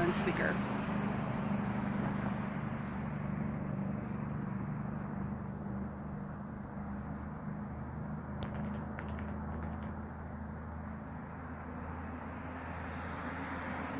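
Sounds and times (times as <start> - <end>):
car engine hum: 0.0 - 13.9
road noise: 0.0 - 13.9.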